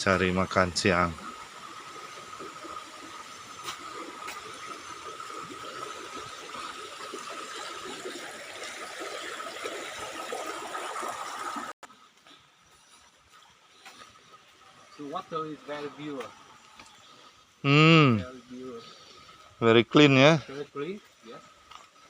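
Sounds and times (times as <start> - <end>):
flowing water rushing: 0.0 - 11.8.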